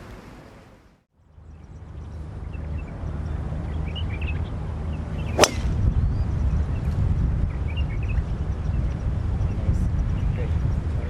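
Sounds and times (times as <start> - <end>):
wind buffeting microphone: 1.4 - 11.0
golf club striking ball: 5.4 - 5.8.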